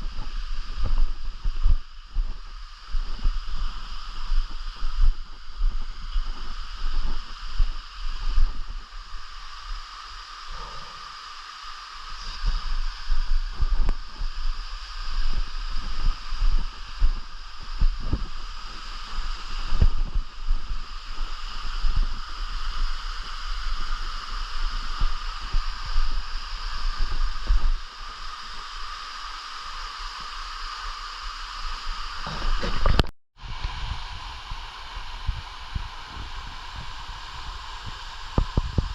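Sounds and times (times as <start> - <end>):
insect chorus: 0.0 - 33.0
wind rumbling on microphone: 0.0 - 38.9
microphone handling thumps: 32.2 - 33.1.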